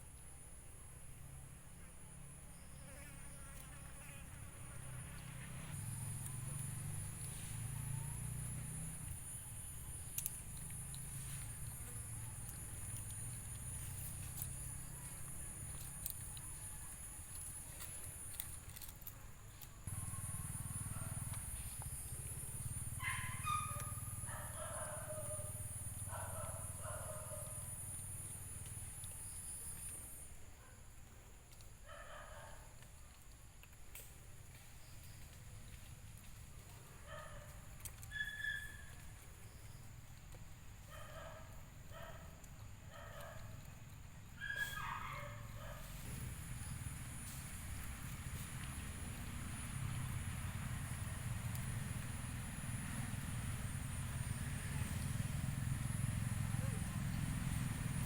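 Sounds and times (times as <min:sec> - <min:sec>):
low insect buzz: 0:01.0 - 0:13.9.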